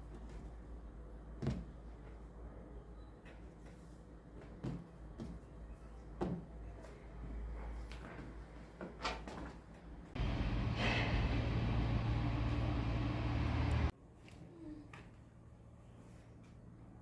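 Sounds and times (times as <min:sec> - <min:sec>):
electric motor humming: 0:10.2 - 0:13.9.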